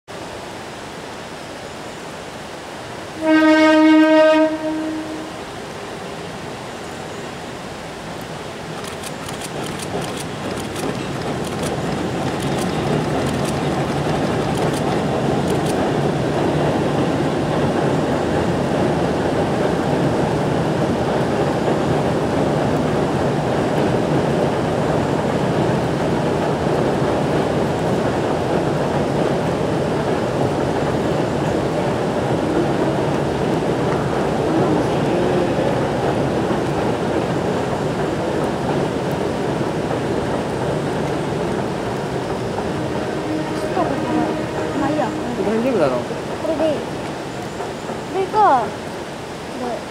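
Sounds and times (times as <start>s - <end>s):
train rumbling over bridge: 3.0s - 49.9s
train horn blast: 3.2s - 5.5s, 42.7s - 45.6s
wheels clicking over rails: 8.8s - 16.0s.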